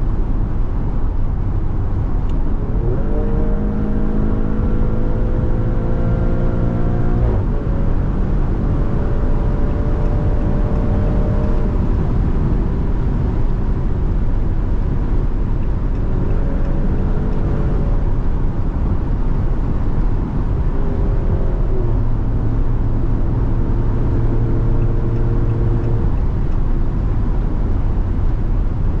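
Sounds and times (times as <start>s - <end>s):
car engine running steadily: 0.0s - 29.0s
road and wind rumble: 0.0s - 29.0s.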